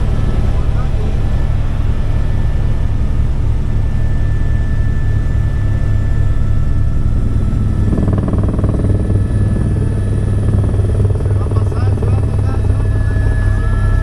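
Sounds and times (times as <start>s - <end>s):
helicopter rotor beating: 0.0s - 14.0s.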